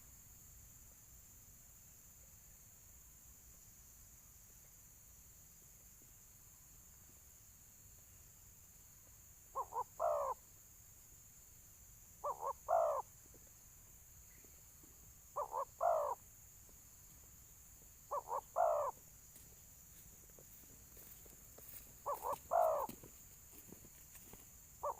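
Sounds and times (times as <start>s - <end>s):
dove cooing: 9.6s - 10.4s, 12.2s - 13.1s, 15.4s - 16.2s, 18.1s - 19.0s, 22.0s - 23.1s.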